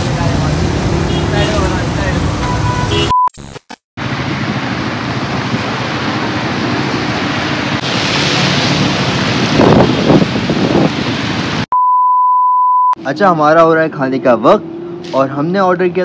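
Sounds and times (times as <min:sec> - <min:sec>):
heavy rain: 0:00.0 - 0:02.7, 0:04.0 - 0:11.7
wind on microphone: 0:09.2 - 0:11.5.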